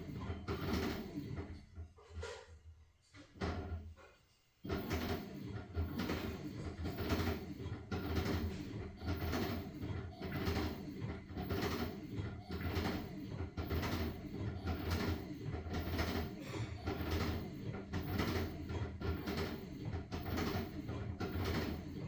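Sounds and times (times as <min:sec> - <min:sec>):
washing machine motor hum: 0:00.0 - 0:02.4, 0:03.1 - 0:22.0
washing machine drum swishing: 0:04.6 - 0:22.0.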